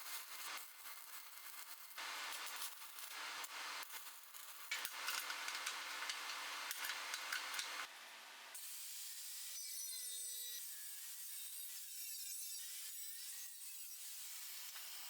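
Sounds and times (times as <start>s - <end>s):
metal scraping on steel: 4.7s - 7.9s.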